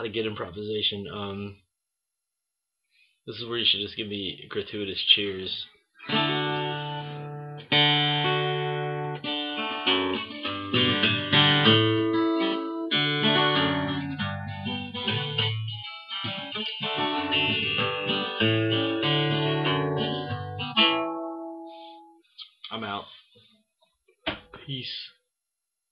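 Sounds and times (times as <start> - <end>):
guitar chords ringing: 6.1 - 22.2.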